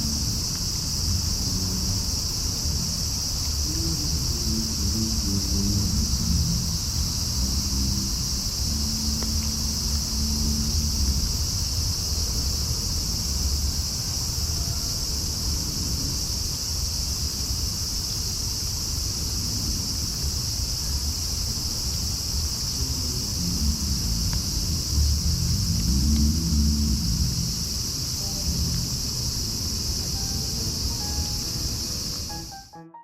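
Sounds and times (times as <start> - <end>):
distant traffic rumble: 0.0 - 14.3, 21.1 - 32.3
crickets chirping: 0.0 - 32.8.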